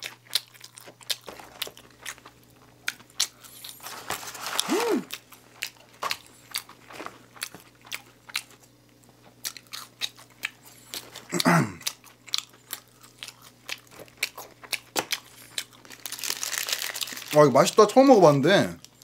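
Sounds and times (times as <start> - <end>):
close chewing with mouth clicks: 0.0 - 3.8, 4.6 - 17.2
person humming mm: 4.6 - 5.1.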